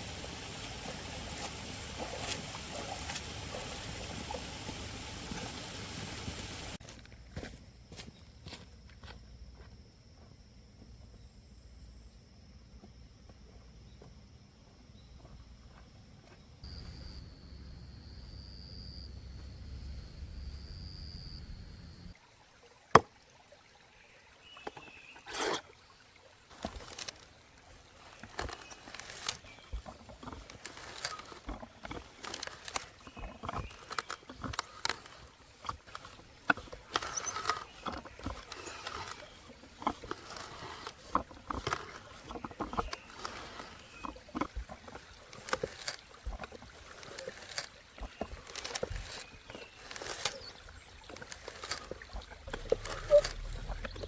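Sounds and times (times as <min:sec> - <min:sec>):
low hum: 0:16.7 - 0:22.1.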